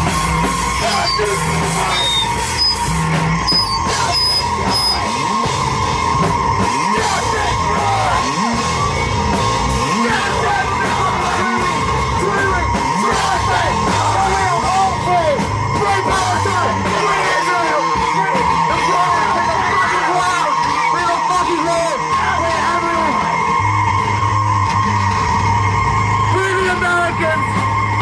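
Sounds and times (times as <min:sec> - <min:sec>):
band playing distorted rock music: 0:00.0 - 0:28.0
steady high tone: 0:00.0 - 0:28.0
person yelling vocals: 0:06.8 - 0:08.4, 0:09.8 - 0:23.3.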